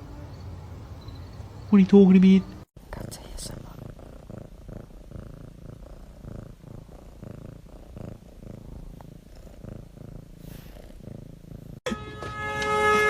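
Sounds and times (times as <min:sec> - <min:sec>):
cat purring: 0:02.8 - 0:11.8.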